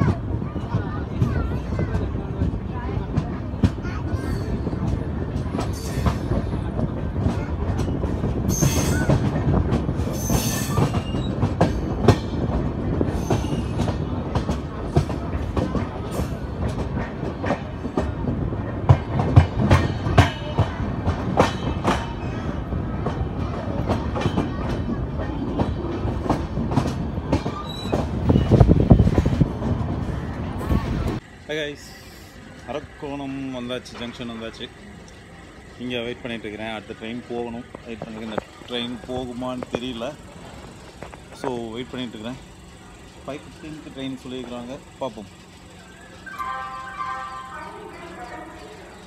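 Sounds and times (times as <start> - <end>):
wheel clacks over rail joints: 0.0 - 31.2, 32.5 - 46.5
train wheel rumble: 0.0 - 49.0
high wheel squeal: 7.8 - 9.2, 10.0 - 12.0, 13.1 - 13.9, 27.4 - 28.7.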